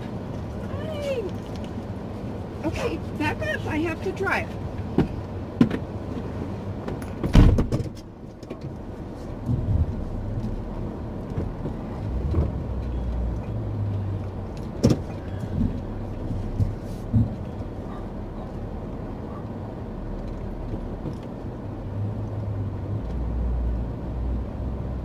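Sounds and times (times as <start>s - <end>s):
van engine running at low speed: 0.0s - 25.0s.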